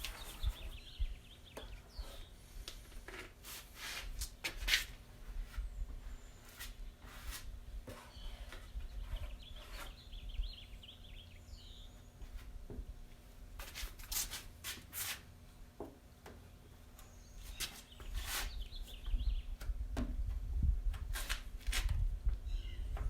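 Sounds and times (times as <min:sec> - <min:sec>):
birds chirping: 0:00.0 - 0:02.5, 0:07.9 - 0:12.3, 0:16.9 - 0:19.6, 0:22.4 - 0:23.0.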